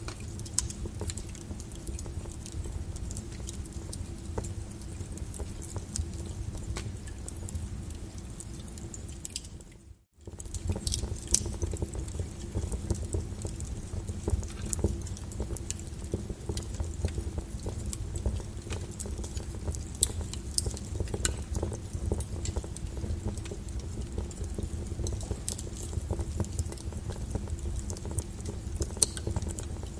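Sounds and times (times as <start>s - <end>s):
rain hiss and rumble: 0.0s - 29.9s
wood fire crackling and popping: 0.0s - 29.9s.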